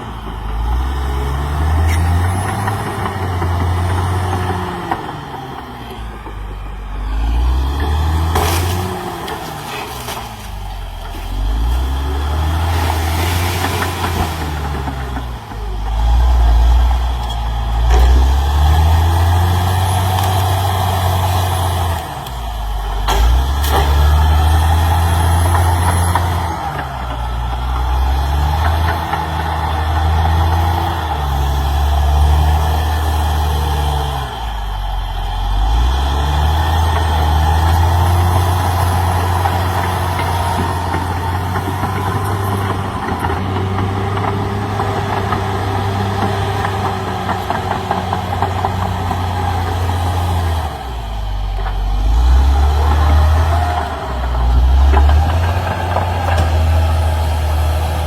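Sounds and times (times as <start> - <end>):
bulldozer diesel engine working: 0.0 - 58.0.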